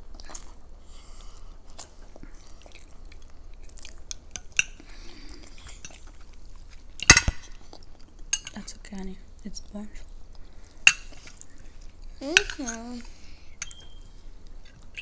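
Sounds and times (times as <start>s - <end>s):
chewing food: 0.0s - 8.6s.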